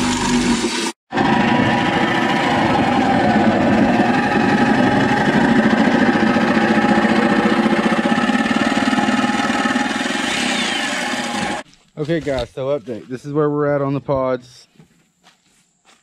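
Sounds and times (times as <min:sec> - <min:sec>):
power saw cutting aluminum: 0:00.0 - 0:11.6.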